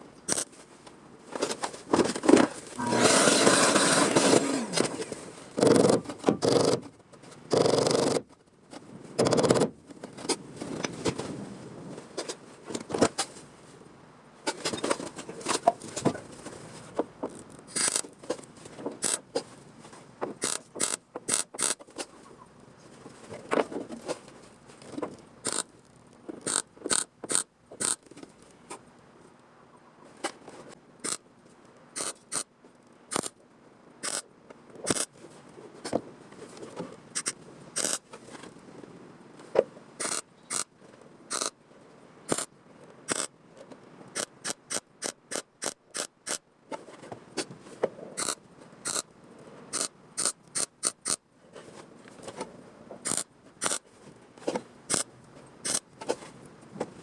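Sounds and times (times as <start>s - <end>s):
sharp metallic clicks: 0.3s - 0.5s, 20.4s - 21.8s, 25.4s - 25.7s, 26.4s - 28.1s, 31.0s - 31.2s, 32.0s - 32.5s, 33.1s - 33.4s, 34.0s - 34.2s, 37.2s - 38.0s, 40.0s - 40.7s, 41.3s - 41.6s, 42.3s - 42.5s, 43.1s - 43.3s, 44.1s - 46.4s, 48.2s - 49.1s, 49.7s - 51.2s, 53.0s - 53.8s, 54.9s - 55.8s
metal rasps: 2.8s - 5.0s, 25.4s - 25.7s, 26.4s - 28.1s, 37.2s - 38.0s, 43.1s - 43.3s, 48.2s - 49.1s, 53.0s - 53.8s.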